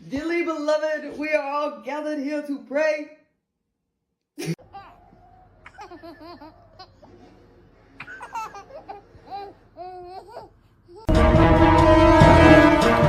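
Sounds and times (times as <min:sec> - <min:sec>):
laughter: 0:04.4 - 0:04.6
loud music: 0:11.1 - 0:13.0.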